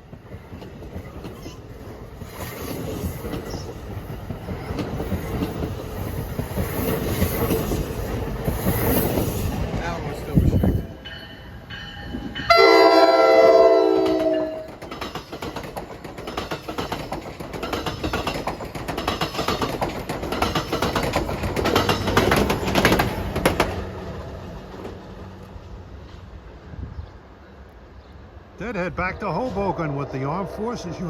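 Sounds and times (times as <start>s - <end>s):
train wheels clattering: 0.0s - 12.5s, 13.9s - 25.4s
train air horn blast: 12.5s - 14.7s.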